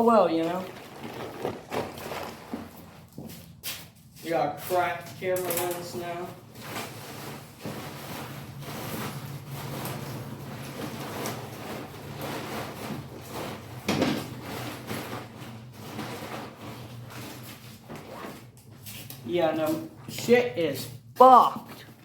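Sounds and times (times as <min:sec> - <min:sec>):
fabric scrape: 0:00.5 - 0:03.4, 0:06.6 - 0:19.0
tent fabric rustling: 0:00.5 - 0:03.4.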